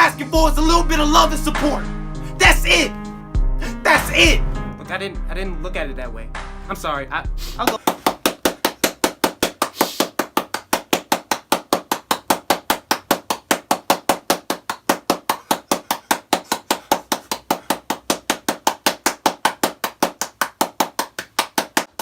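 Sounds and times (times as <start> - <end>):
rapid sharp knocks: 7.7 - 22.0.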